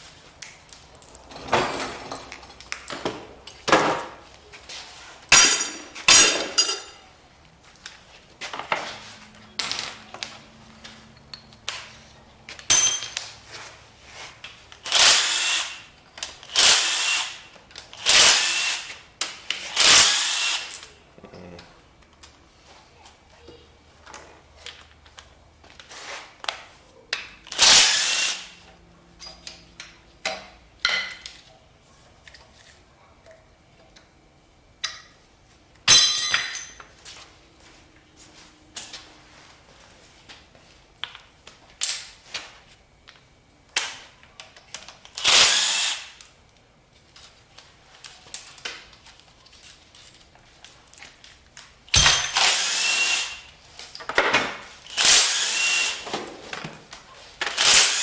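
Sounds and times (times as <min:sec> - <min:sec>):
metal parts clinking: 0:00.0 - 0:04.3, 0:05.3 - 0:07.1, 0:11.2 - 0:13.3, 0:22.1 - 0:22.6, 0:35.9 - 0:36.9, 0:48.3 - 0:55.4
power tool running: 0:14.9 - 0:15.8, 0:16.5 - 0:17.4, 0:19.8 - 0:20.7, 0:27.6 - 0:28.6, 0:45.2 - 0:46.1, 0:52.3 - 0:53.5, 0:54.9 - 0:56.1, 0:57.5 - 0:58.0.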